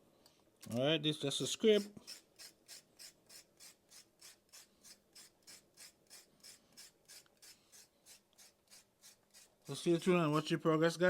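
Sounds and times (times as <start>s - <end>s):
knife scraping a carrot: 1.8s - 10.1s.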